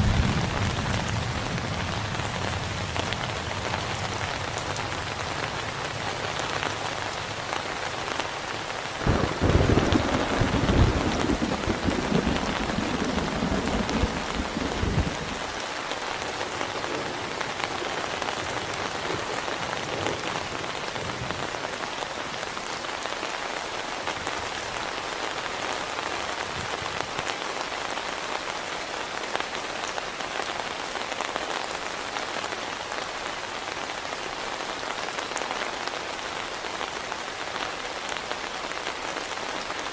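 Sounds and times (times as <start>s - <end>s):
thunder rumbling: 0.0s - 4.6s, 9.0s - 15.5s
heavy rain: 0.0s - 39.9s.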